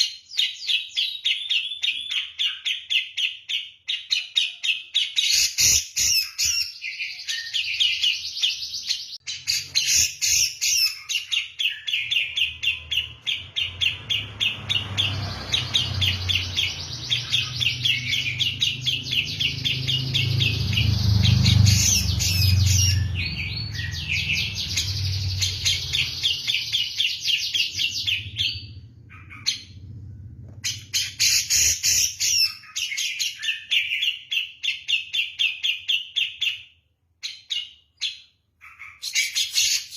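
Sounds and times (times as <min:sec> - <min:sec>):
bird singing rapid chattering notes: 0:00.0 - 0:30.0
low rumble: 0:27.6 - 0:30.9.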